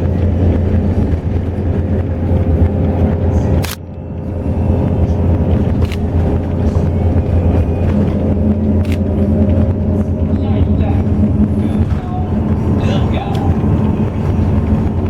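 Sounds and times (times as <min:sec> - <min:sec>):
bus engine and road rumble: 0:00.0 - 0:15.0
sharp click: 0:03.6 - 0:03.9.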